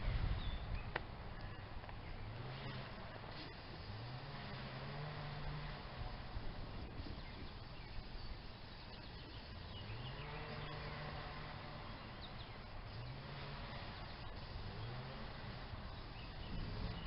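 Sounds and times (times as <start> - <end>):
faint bird chirps: 6.8 - 15.3.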